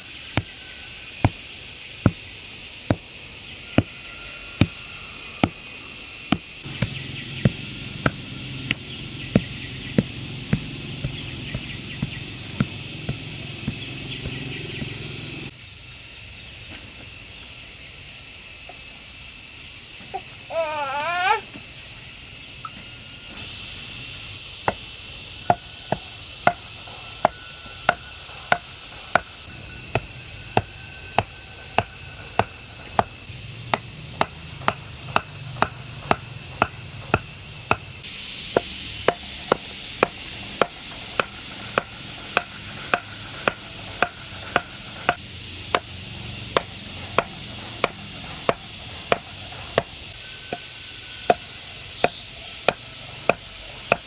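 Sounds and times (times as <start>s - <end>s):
steady high hiss: 0.0s - 54.0s
rhythmic chopping knocks: 6.3s - 15.5s, 24.7s - 50.7s, 51.3s - 54.0s.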